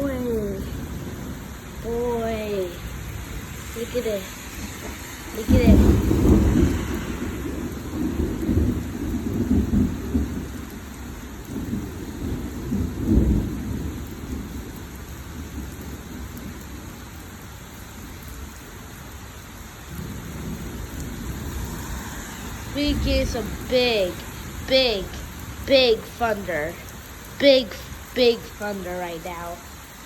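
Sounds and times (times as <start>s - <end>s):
thunder rumbling: 0.0s - 16.6s, 19.9s - 30.0s
rain hissing: 0.0s - 30.0s.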